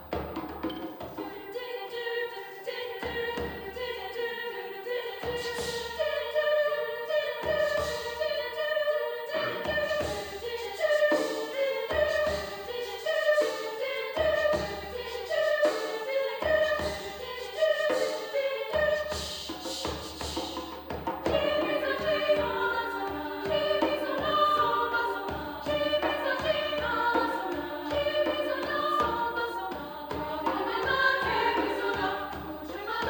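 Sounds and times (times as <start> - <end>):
choir singing in parts: 0.0 - 33.0
sharp rhythmic accents: 9.2 - 20.2.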